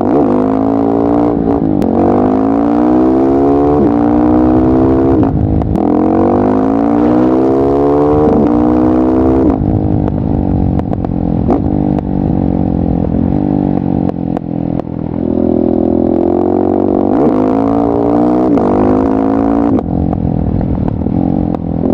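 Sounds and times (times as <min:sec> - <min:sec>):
exhaust popping: 0:00.0 - 0:21.9
motorcycle engine accelerating: 0:00.0 - 0:21.9.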